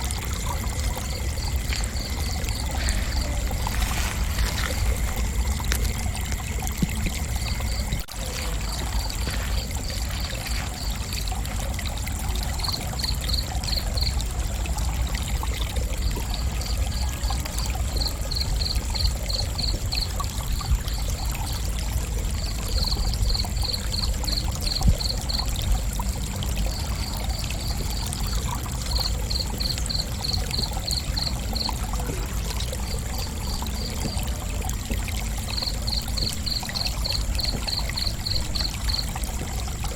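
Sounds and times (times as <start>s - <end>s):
low rumbling noise: 0.0s - 11.4s
high-pitched insect trill: 0.0s - 14.1s, 35.0s - 39.8s
crickets chirping: 0.0s - 39.9s.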